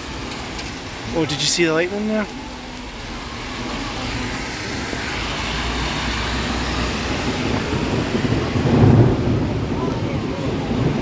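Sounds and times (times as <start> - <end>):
heavy rain pouring: 0.0 - 11.0
rolling thunder rumble: 2.9 - 11.0.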